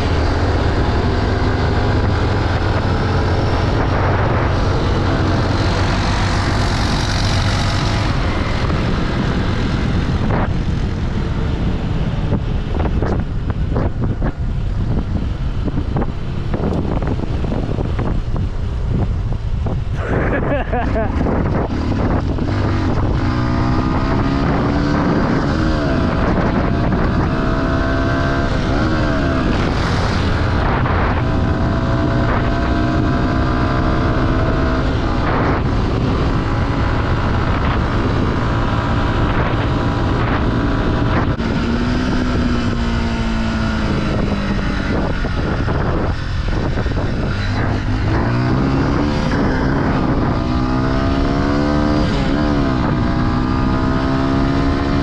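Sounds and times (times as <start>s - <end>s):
off-road vehicle engine revving: 20.0s - 55.0s.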